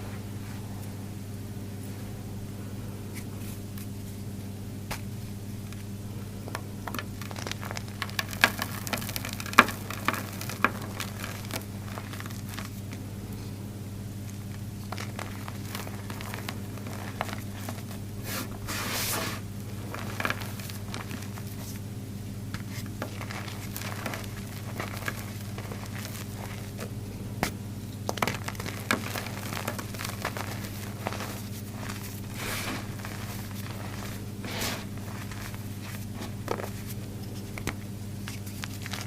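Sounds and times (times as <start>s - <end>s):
chalk block crunching: 6.4s - 13.0s, 14.3s - 21.8s, 22.5s - 39.0s.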